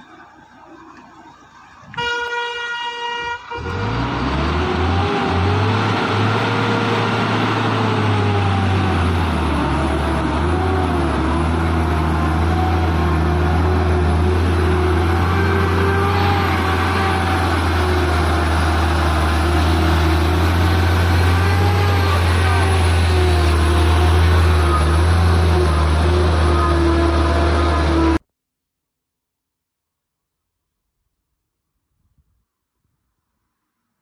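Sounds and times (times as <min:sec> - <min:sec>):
vehicle horn: 0:01.9 - 0:04.3, 0:14.8 - 0:18.1, 0:23.9 - 0:28.2
heavy truck engine running: 0:03.3 - 0:28.2.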